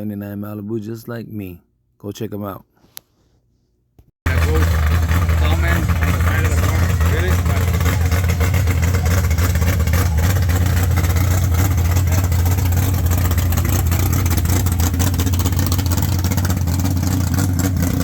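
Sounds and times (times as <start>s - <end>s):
car engine exhaust rumble: 4.3s - 18.0s.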